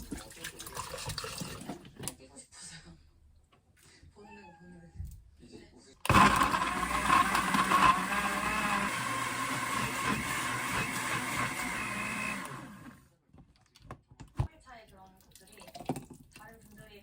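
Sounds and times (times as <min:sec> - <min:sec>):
kitchen appliance motor running: 0:06.1 - 0:13.0.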